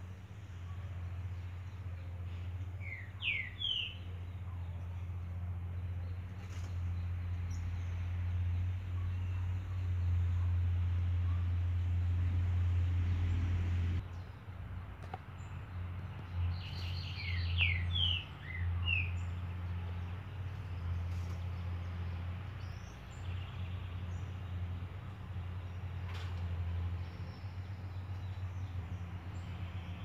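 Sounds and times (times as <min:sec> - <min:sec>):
bird chirping: 0:00.6 - 0:05.1, 0:15.3 - 0:30.0
steady low hum: 0:04.1 - 0:15.8.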